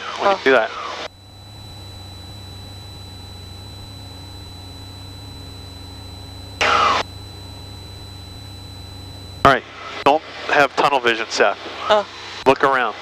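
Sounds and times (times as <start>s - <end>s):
airplane engine droning: 0.8s - 12.4s
thin steady high tone: 1.0s - 12.8s.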